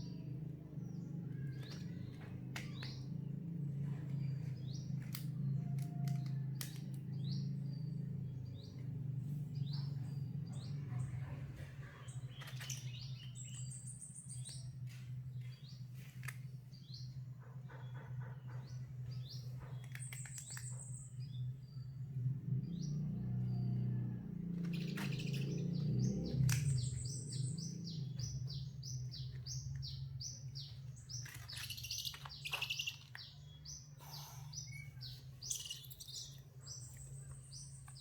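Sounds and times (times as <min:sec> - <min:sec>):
steady low hum: 0:00.0 - 0:38.0
high bird chirps: 0:24.7 - 0:38.0.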